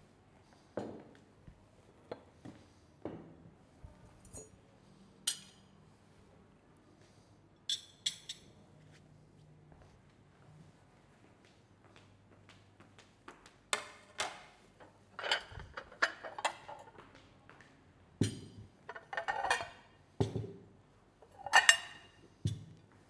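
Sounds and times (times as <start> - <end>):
tableware clinking: 5.3 - 5.7, 7.7 - 8.6, 15.2 - 16.9, 18.2 - 20.4, 21.2 - 22.7.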